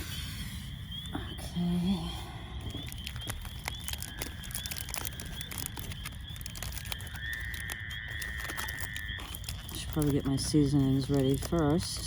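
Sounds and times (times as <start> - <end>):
crickets chirping: 0.0 - 12.0
high insect trill: 0.0 - 12.0
items being handled: 2.6 - 12.0.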